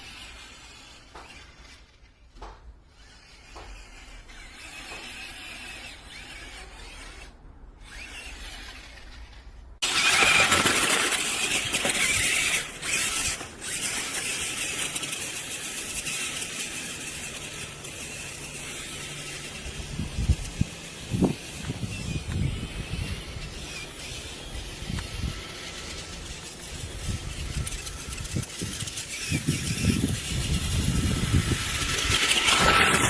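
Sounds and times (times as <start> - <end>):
toy truck electric motor whine: 0.0 - 33.0.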